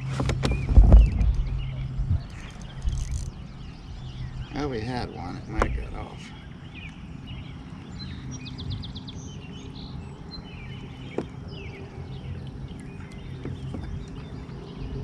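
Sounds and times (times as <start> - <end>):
steady low rumble: 0.0 - 15.0
birds chirping and calling: 0.4 - 11.9.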